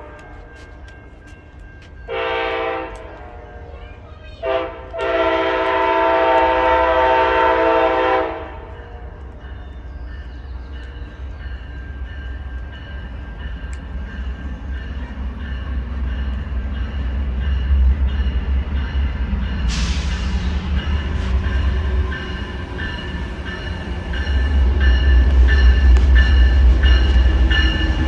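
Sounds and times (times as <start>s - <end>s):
low rumble of train: 0.0s - 28.0s
train air horn blast: 2.1s - 3.6s, 4.4s - 9.2s, 19.7s - 22.2s.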